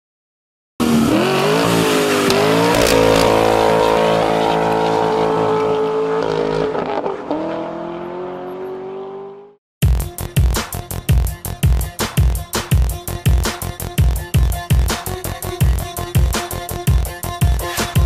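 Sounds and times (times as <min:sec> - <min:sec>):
sports car engine revving: 0:00.8 - 0:09.6
electronic music with a beat: 0:09.8 - 0:18.0.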